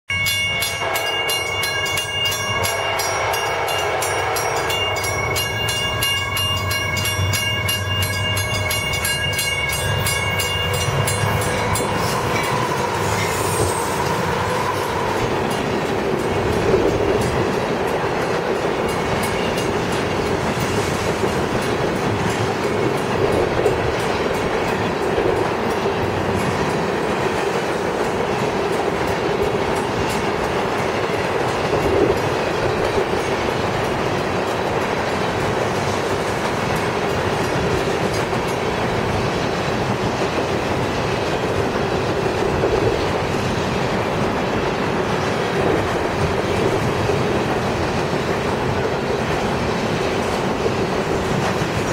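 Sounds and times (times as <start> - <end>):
freight train wheels clattering: 0.1 - 51.9.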